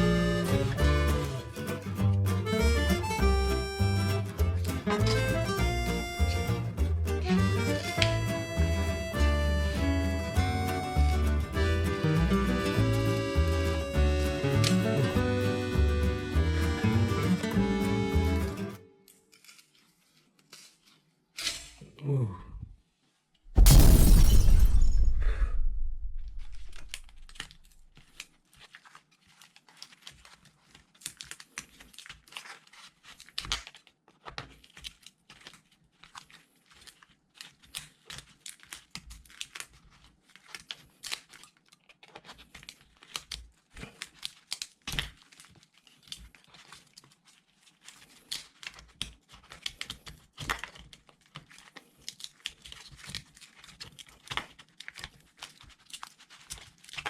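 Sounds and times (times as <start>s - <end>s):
adhesive and plastic crackling: 14.4s - 15.2s, 19.0s - 21.6s, 26.3s - 57.0s
loud thump: 23.5s - 27.2s.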